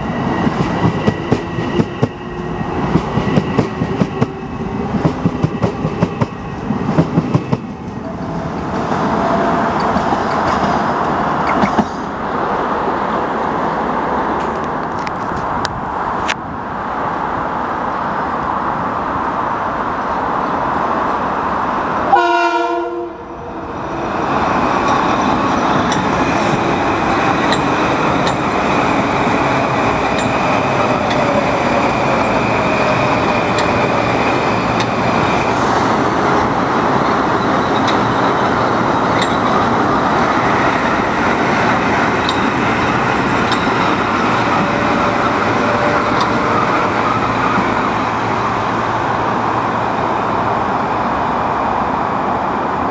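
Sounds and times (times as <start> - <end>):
train wheels on rails: 0.0 - 16.4, 23.5 - 52.9
short train horn: 22.1 - 23.3.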